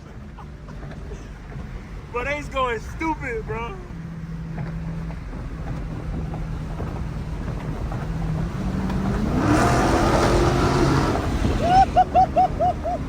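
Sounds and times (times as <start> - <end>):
car engine revving: 3.2 - 13.0.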